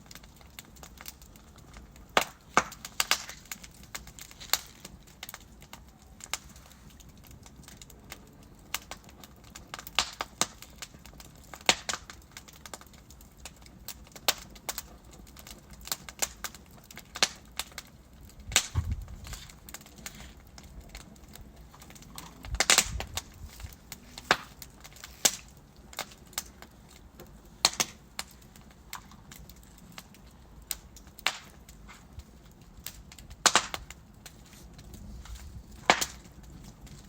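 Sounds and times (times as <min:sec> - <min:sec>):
burning logs crackling: 0:00.0 - 0:37.0
loud pop with low thud: 0:18.6 - 0:19.1.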